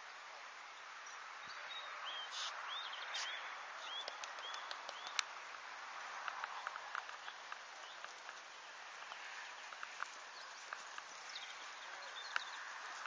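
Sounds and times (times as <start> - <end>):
open-air background hiss: 0.0 - 13.0
small bird chirping: 1.0 - 5.2, 6.5 - 13.0
faint clicks: 4.0 - 5.6, 6.2 - 12.6.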